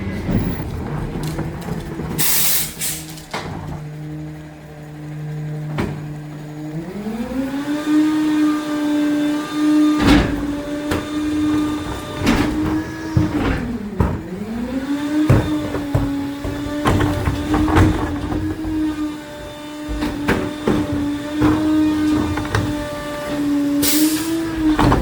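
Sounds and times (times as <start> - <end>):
metallic knocks and bangs: 0.0 - 2.3, 10.0 - 23.6
garbage truck hydraulic whine: 0.0 - 25.0.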